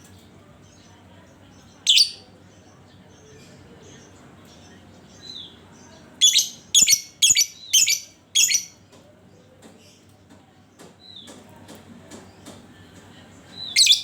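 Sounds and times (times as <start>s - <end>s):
bird soft chirps: 1.8s - 2.3s
bird harsh shrill calls: 1.9s - 2.2s.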